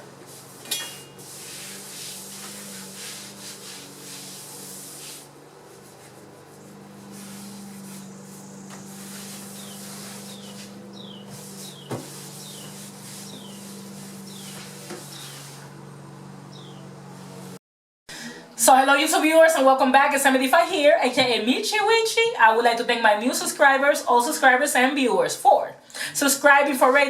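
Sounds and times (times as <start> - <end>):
low electrical hum: 0.0 - 27.0
comb rubbing through hair: 0.2 - 15.8.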